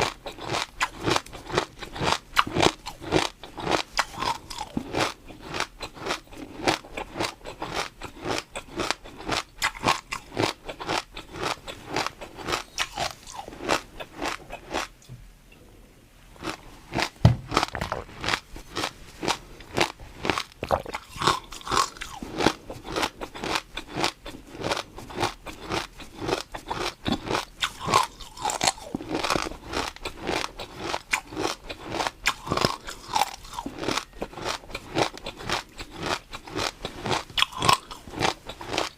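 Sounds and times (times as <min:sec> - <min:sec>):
crunchy chewing and biting: 0:00.0 - 0:15.0, 0:16.4 - 0:38.9
low thump: 0:17.2 - 0:18.0.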